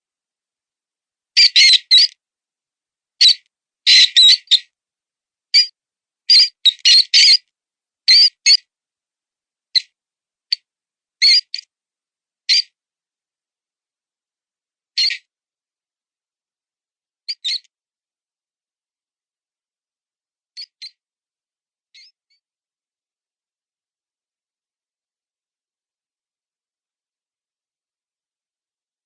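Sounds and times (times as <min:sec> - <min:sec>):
mouse distress squeaks: 0:01.4 - 0:02.1, 0:03.2 - 0:04.6, 0:06.3 - 0:07.4, 0:08.1 - 0:08.6, 0:11.2 - 0:11.6, 0:17.3 - 0:17.7.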